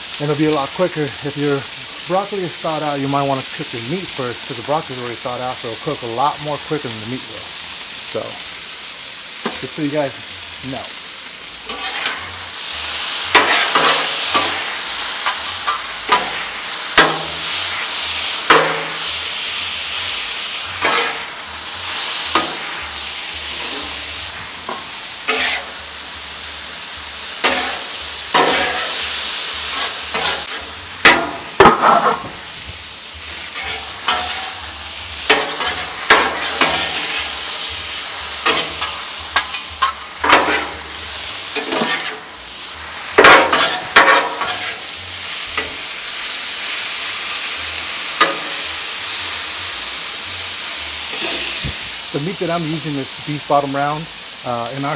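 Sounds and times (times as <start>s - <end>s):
beef sizzling on griddle: 0.0s - 54.9s
metal spatula scraping griddle: 11.6s - 19.2s, 20.6s - 25.9s, 27.4s - 32.6s, 33.3s - 42.3s, 43.1s - 45.8s, 48.2s - 48.8s, 51.1s - 52.0s.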